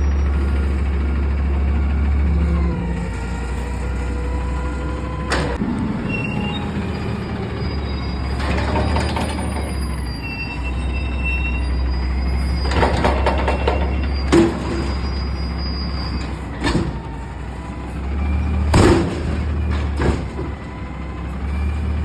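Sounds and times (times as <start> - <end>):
garbage truck running: 0.0 - 22.0
rattling clatter: 8.3 - 10.0, 12.6 - 17.2, 18.7 - 20.8.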